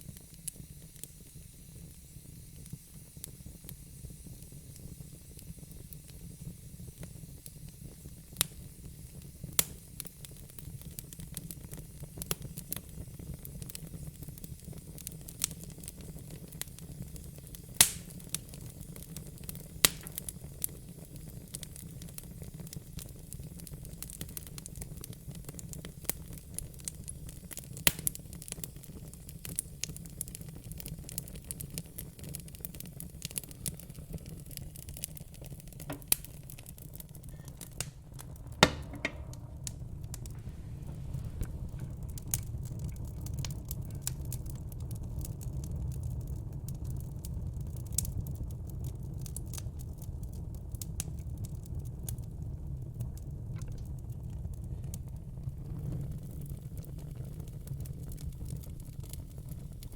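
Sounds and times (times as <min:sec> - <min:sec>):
sharp pops of fire: 0:00.0 - 0:52.3
wood fire crackling: 0:00.0 - 0:59.9
low rumble: 0:37.0 - 0:45.2.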